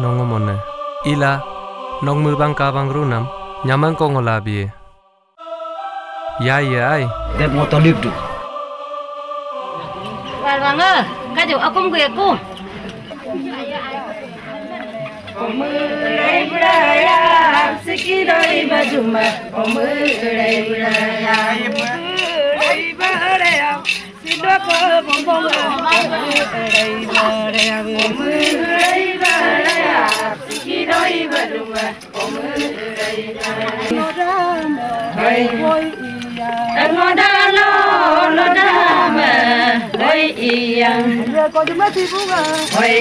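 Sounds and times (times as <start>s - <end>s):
group of voices chanting: 5.4s - 41.3s
rattle-like clicking beat: 16.6s - 34.1s, 39.9s - 43.0s.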